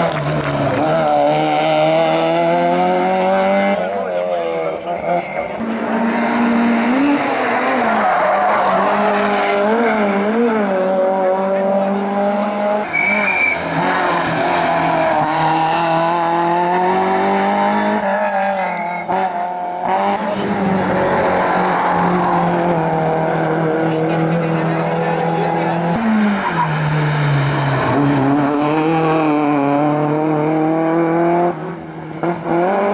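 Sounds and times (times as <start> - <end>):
racing car engine at full throttle: 0.0 - 32.9
tyres squealing: 12.8 - 15.0.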